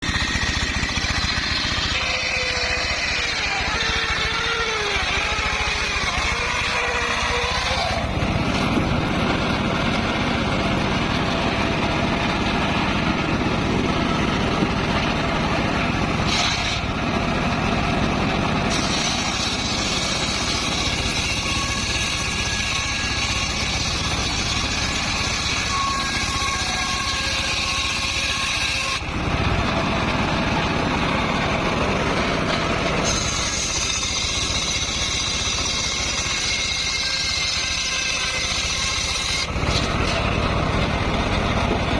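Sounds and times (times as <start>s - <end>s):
engine-driven circular saw running: 0.0s - 41.9s.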